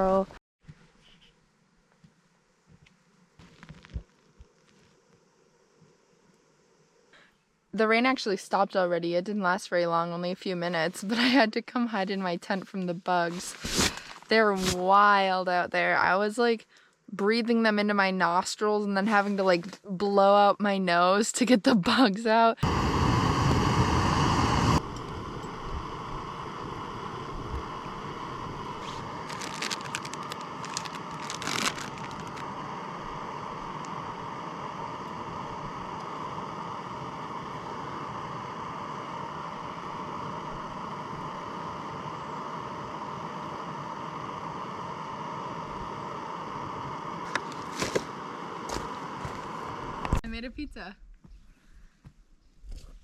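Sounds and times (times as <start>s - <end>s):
fabric rustling: 13.3s - 14.9s, 28.8s - 32.4s.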